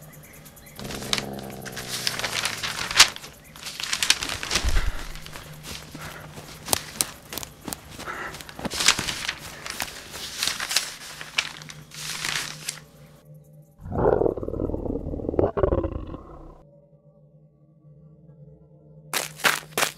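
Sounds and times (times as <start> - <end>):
footsteps running through undergrowth: 0.8 - 12.9, 19.2 - 19.9.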